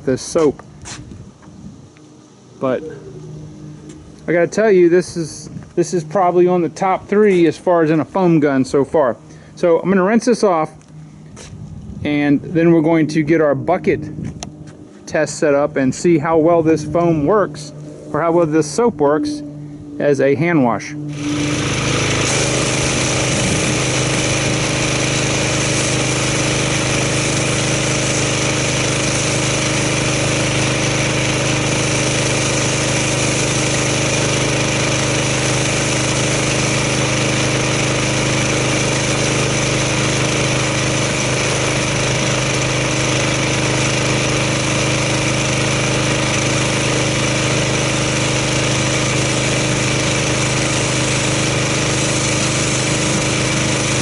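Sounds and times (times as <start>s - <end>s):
pressure washer engine running: 0.0s - 54.0s
water spray hiss: 21.5s - 41.6s, 48.4s - 54.0s.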